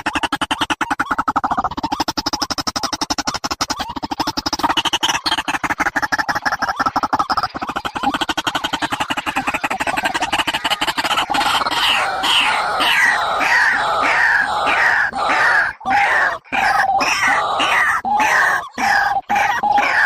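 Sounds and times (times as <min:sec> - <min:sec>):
harsh downward-sliding bird calls: 0:00.0 - 0:20.0.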